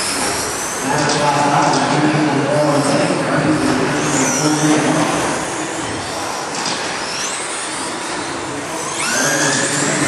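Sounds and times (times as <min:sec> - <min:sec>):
rc trucks motors whining: 0:00.0 - 0:01.1, 0:03.6 - 0:10.0.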